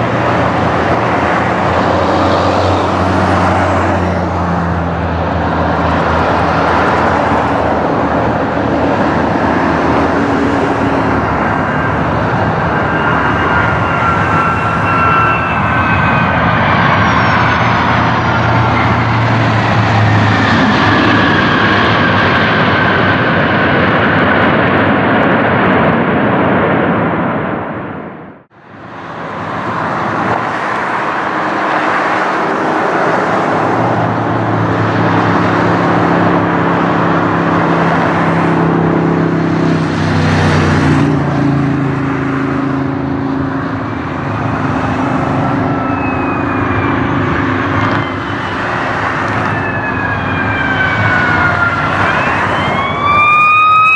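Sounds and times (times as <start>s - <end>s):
jet airliner engine whine: 0.0s - 53.9s
jet engine rush: 0.0s - 53.9s.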